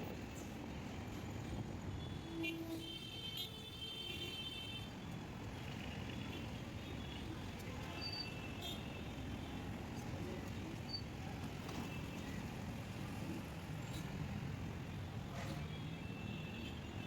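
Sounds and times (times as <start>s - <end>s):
low rumble of traffic: 4.7s - 17.0s.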